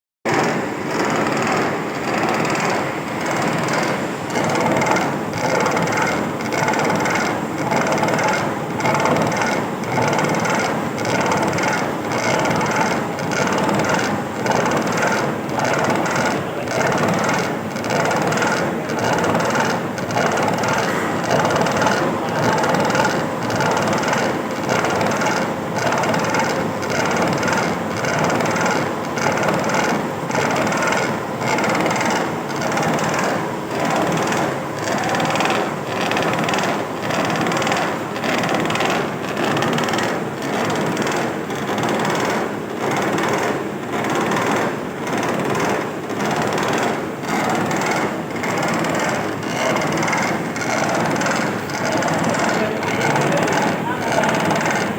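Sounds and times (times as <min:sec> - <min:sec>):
milling machine cutting metal: 0:46.2 - 0:54.9.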